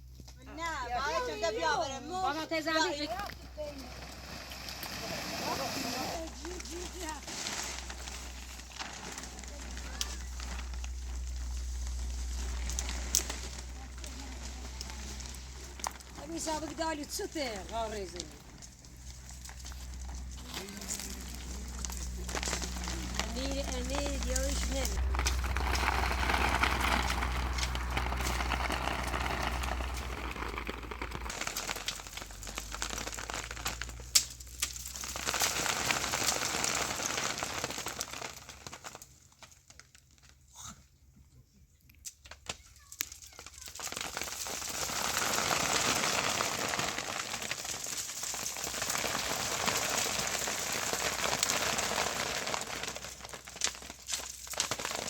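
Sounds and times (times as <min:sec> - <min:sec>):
rustling and crackling: 0:00.0 - 0:40.5, 0:42.0 - 0:55.0
low hum: 0:06.2 - 0:32.7.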